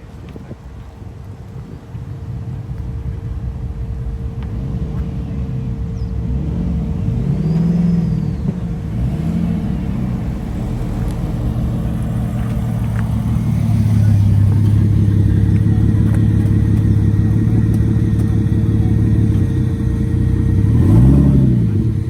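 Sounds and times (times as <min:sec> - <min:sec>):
car engine revving: 0:03.6 - 0:22.0.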